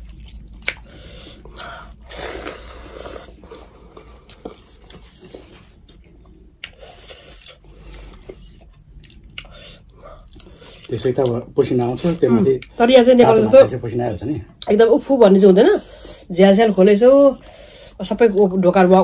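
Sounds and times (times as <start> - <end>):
chewing and wet mouth noises: 0.0 - 13.3.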